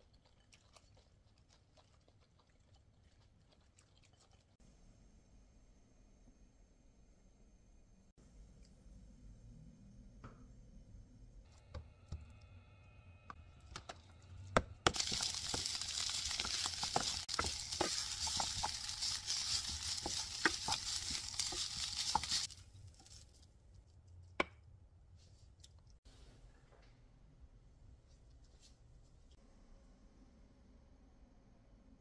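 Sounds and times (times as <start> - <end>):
spatulas scraping a pan: 14.9 - 22.5
fried rice sizzling in pan: 14.9 - 23.2.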